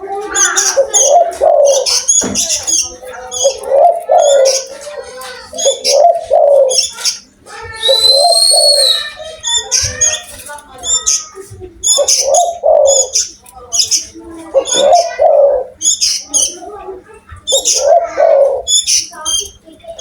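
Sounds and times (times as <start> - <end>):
dove cooing: 0.0 - 20.0
small birds chirping: 0.0 - 20.0.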